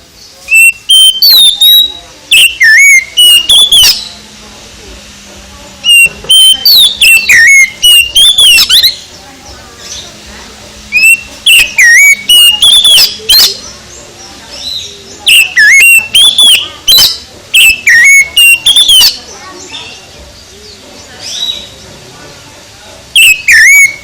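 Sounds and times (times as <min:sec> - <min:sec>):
bird singing whistled phrases: 0:00.5 - 0:04.2, 0:05.8 - 0:09.1, 0:10.9 - 0:20.0, 0:23.1 - 0:24.0.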